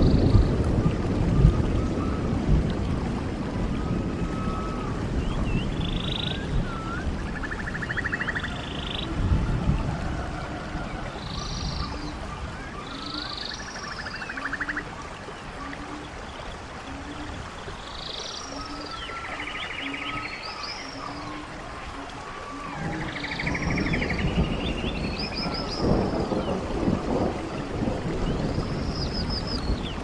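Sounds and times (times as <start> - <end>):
stream water running: 0.0 - 30.0
birds calling: 10.0 - 27.6.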